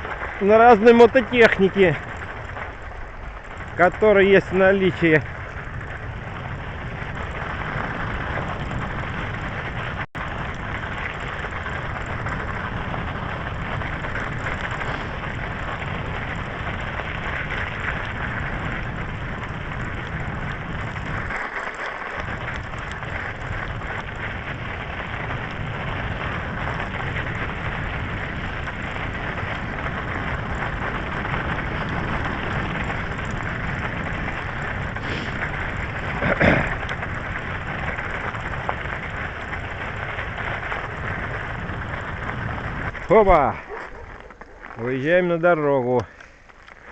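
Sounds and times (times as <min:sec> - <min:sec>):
bicycle tyres on frozen snow: 0:00.0 - 0:46.9
wind rush on microphone: 0:00.0 - 0:46.9.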